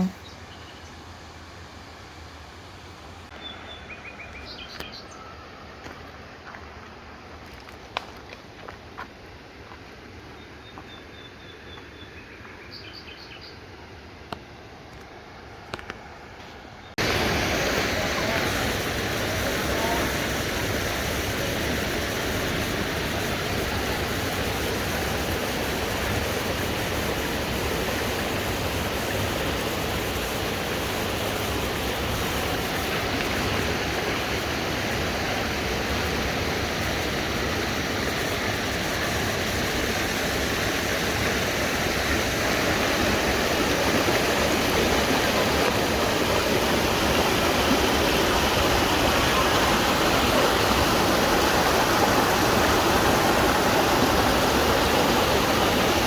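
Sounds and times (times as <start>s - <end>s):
waterfall rushing: 17.0s - 56.0s.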